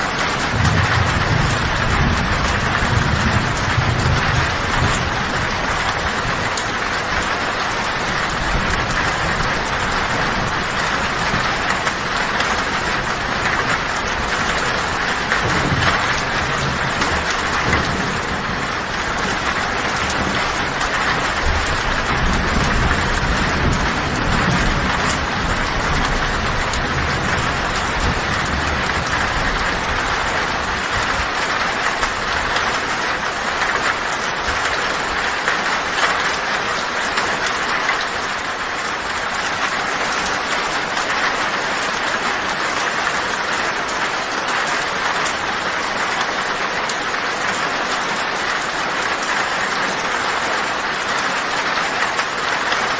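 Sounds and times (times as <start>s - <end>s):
thunder rumbles: 0.0s - 35.2s
heavy rain on a tin roof: 0.0s - 52.9s.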